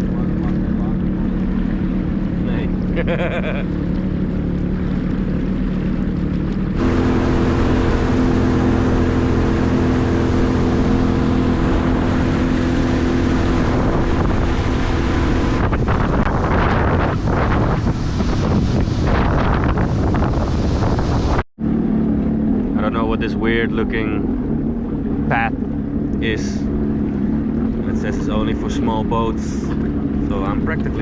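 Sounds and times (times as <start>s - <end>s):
jet ski engine running: 0.0s - 31.0s
wind and water noise: 0.0s - 31.0s.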